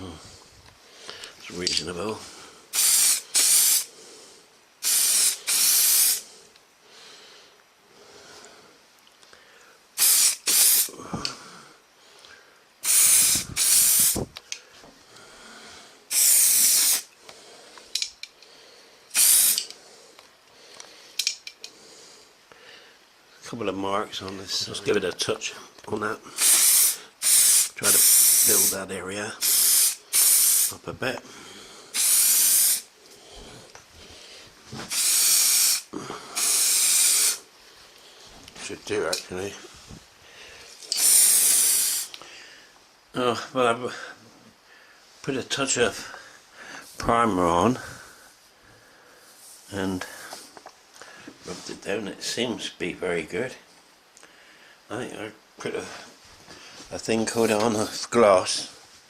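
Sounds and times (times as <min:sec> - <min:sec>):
aerosol can spraying: 0:02.7 - 0:03.9, 0:04.8 - 0:06.2, 0:10.0 - 0:10.9, 0:12.8 - 0:14.3, 0:16.1 - 0:17.1, 0:19.1 - 0:19.7, 0:26.4 - 0:28.8, 0:29.4 - 0:30.8, 0:32.0 - 0:32.9, 0:34.8 - 0:37.5, 0:40.9 - 0:42.2.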